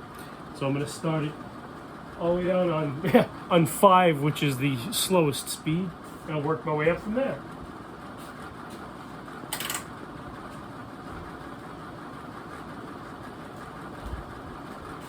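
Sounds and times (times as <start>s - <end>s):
ceiling fan whirring: 0.0s - 15.0s.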